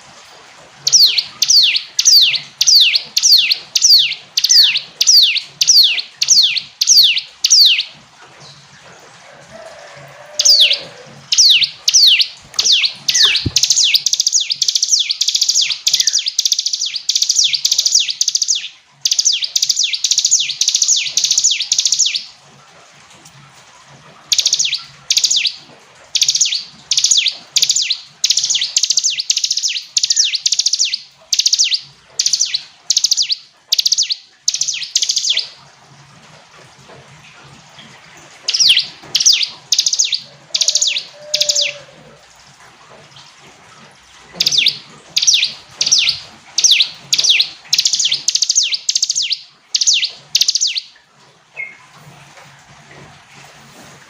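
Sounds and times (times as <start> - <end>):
bird singing high chirps: 0.9 - 7.9, 10.4 - 22.3, 24.3 - 25.6, 26.2 - 35.6, 38.5 - 41.9, 44.4 - 50.9.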